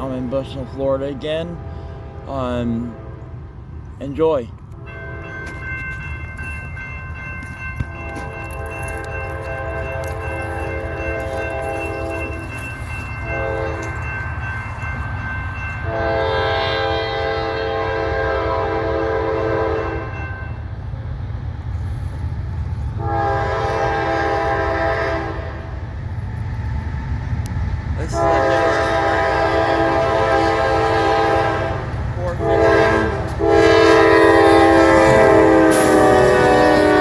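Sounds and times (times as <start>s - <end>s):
low rumble of passing train: 0.0s - 37.0s
train horn blasts: 1.3s - 3.7s, 4.7s - 5.9s, 7.8s - 14.3s, 15.8s - 20.6s, 23.0s - 25.8s, 28.0s - 37.0s.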